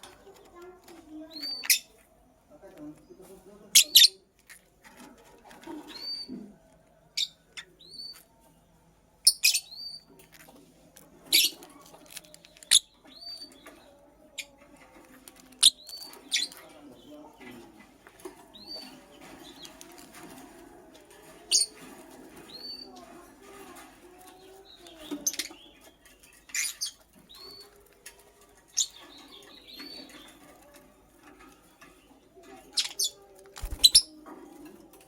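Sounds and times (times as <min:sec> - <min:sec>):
lovebird chirping: 0:32.8 - 0:34.2.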